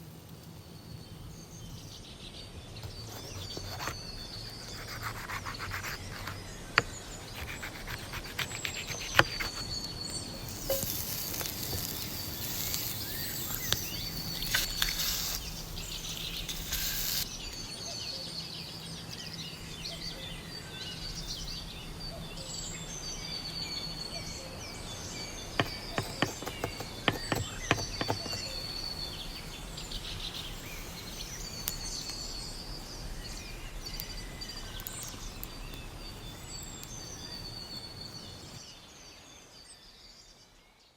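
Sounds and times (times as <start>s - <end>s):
birds chirping and whistling: 2.8s - 38.2s
steady hiss: 3.0s - 17.8s
sharp clicks and knocks: 25.6s - 28.5s.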